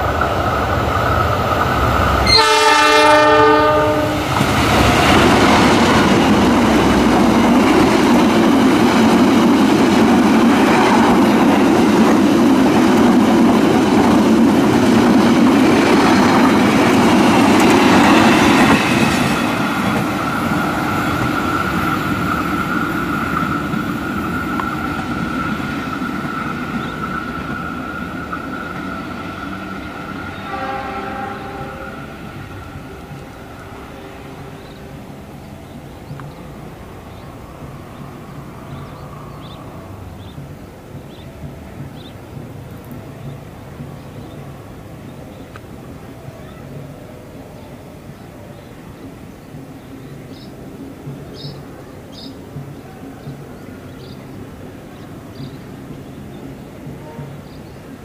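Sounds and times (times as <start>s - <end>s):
train wheels rumbling on rails: 0.0s - 58.0s
locomotive horn: 2.2s - 4.4s, 30.3s - 32.3s, 57.0s - 57.6s.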